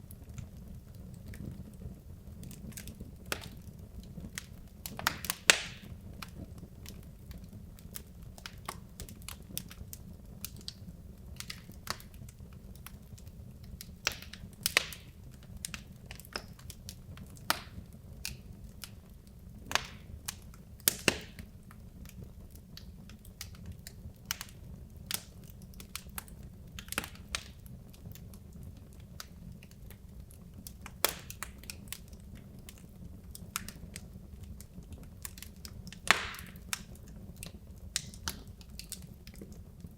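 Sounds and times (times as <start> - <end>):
logs crackling and popping: 0.0 - 39.9
low rumble of flames: 0.0 - 39.9.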